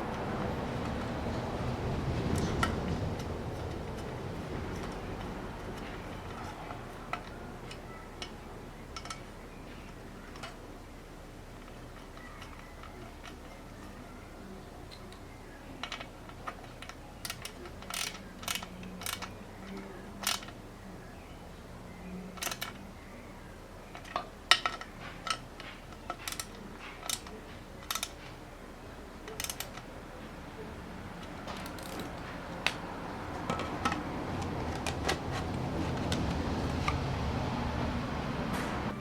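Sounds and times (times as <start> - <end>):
tools clicking and tapping: 15.8 - 20.6, 22.4 - 22.8, 23.9 - 28.4, 29.2 - 30.0, 30.6 - 37.0.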